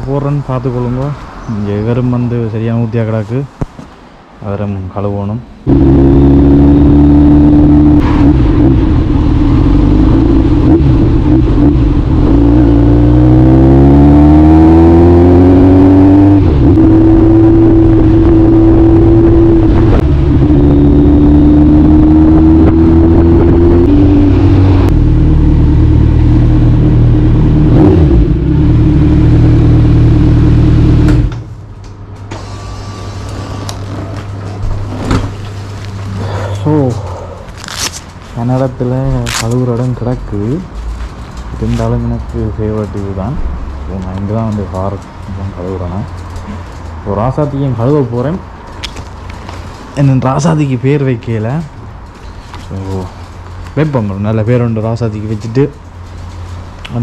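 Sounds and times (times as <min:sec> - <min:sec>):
vehicle engine accelerating: 0:05.6 - 0:31.5.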